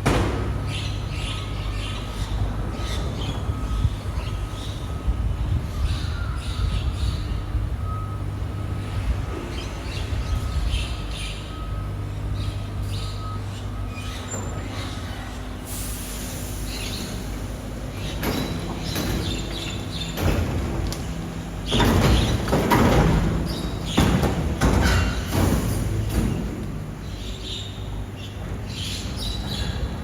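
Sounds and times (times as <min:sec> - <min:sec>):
garbage truck machinery humming: 0:00.0 - 0:30.0
hiss of escaping air: 0:15.7 - 0:17.5.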